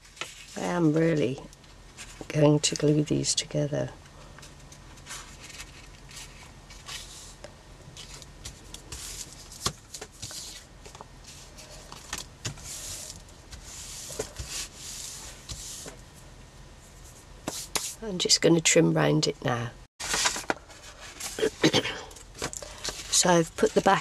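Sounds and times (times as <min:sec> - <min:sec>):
card pieces rubbed by hand: 0:08.0 - 0:16.0.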